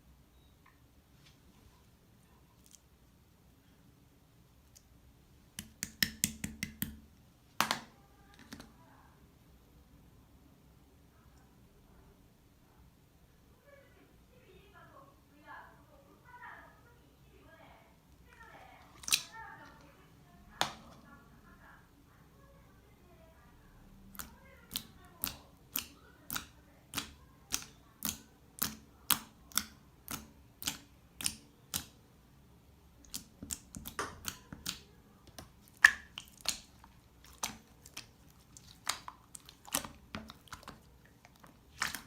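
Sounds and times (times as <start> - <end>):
slime clicking pops: 24.2 - 31.9.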